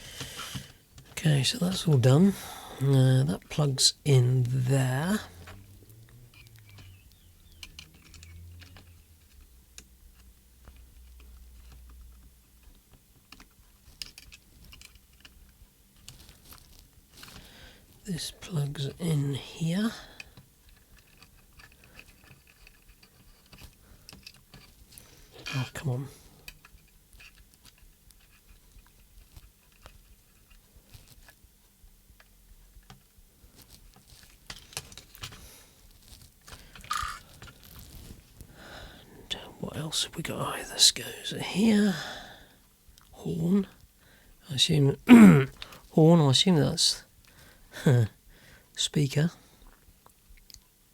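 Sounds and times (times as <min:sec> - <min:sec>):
plastic parts clicking: 0:06.3 - 0:12.0, 0:13.2 - 0:15.4, 0:36.5 - 0:37.9.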